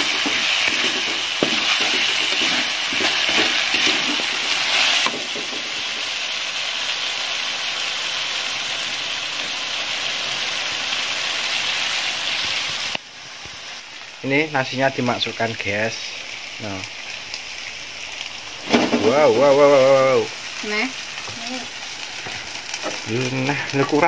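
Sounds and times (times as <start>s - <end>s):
metal spatula scraping wok: 0.0s - 6.1s
paste sizzling in hot oil: 0.0s - 24.0s.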